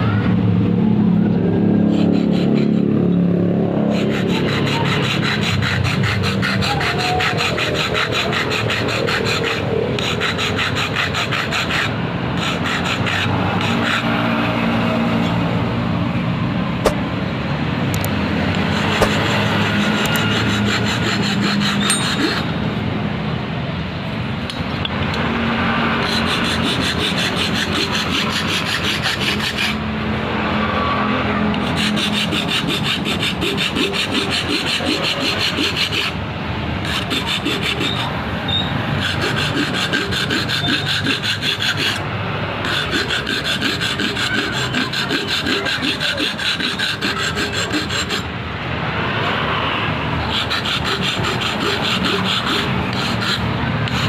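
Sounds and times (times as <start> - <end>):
hand tool rasping: 1.8 - 14.1, 18.0 - 22.6, 26.0 - 29.8, 31.6 - 36.2, 36.8 - 42.0, 42.6 - 48.3, 50.2 - 54.0.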